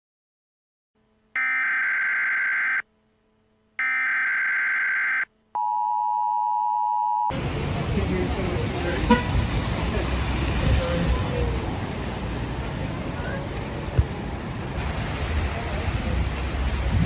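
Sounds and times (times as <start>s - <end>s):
telephone ringing tones: 3.8s - 7.3s
street traffic noise: 7.3s - 17.0s.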